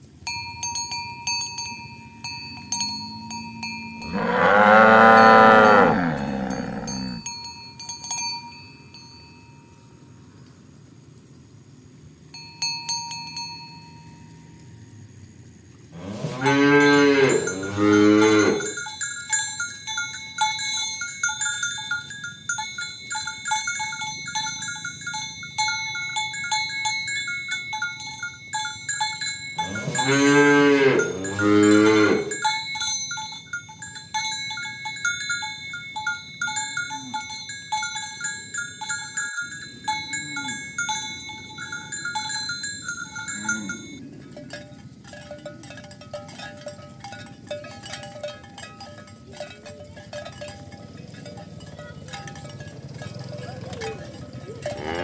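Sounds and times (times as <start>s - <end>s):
cowbells clanking: 0.0s - 9.9s, 12.3s - 14.5s, 16.0s - 55.0s
cattle mooing: 4.0s - 7.2s, 16.0s - 18.7s, 29.7s - 32.3s, 53.0s - 55.0s.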